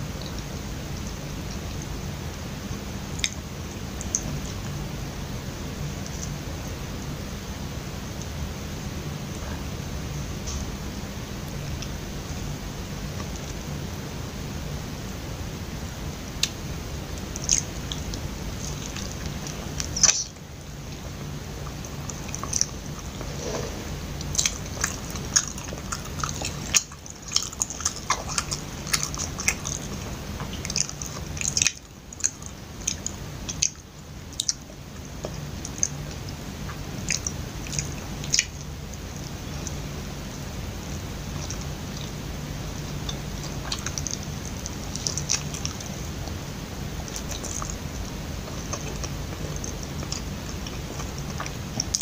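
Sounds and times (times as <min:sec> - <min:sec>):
steady low hum: 0:00.0 - 0:52.0
biting and chewing sticky food: 0:15.8 - 0:52.0.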